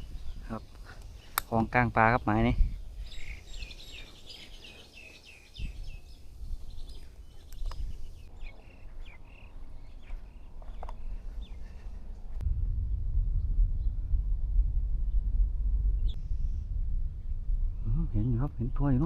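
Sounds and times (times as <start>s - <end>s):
birds chirping: 0.0s - 12.4s
low rumble: 8.3s - 19.0s.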